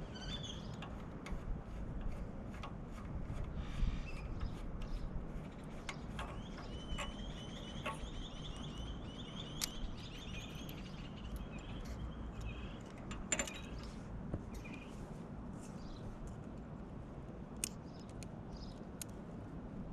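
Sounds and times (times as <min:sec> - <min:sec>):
bird chirping: 0:00.0 - 0:01.0, 0:03.6 - 0:15.0, 0:17.8 - 0:18.8
low steady rumble: 0:00.0 - 0:19.9.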